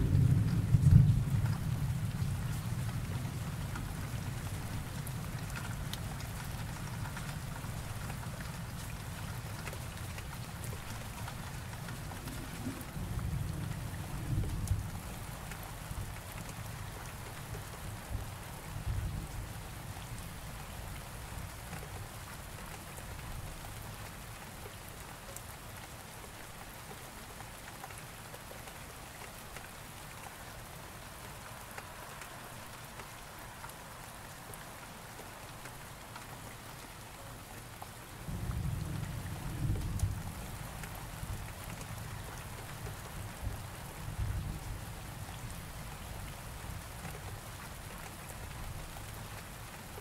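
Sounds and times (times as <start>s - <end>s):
low thunder rumbling: 0.0s - 3.5s, 38.3s - 41.5s
steady rain falling: 0.0s - 50.0s.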